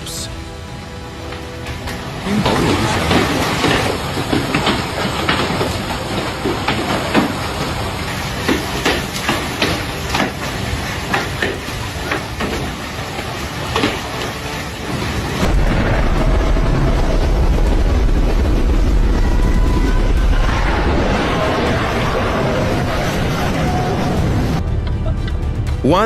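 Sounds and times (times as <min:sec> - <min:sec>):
hailstones pelting down: 0:01.2 - 0:24.6
low rumble: 0:15.2 - 0:25.9.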